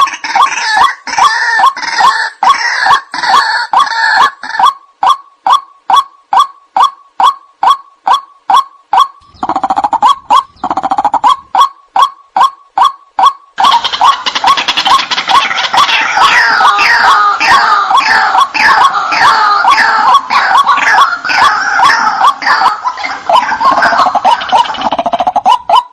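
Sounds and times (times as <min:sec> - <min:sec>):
waterhen calling: 0:00.0 - 0:25.9.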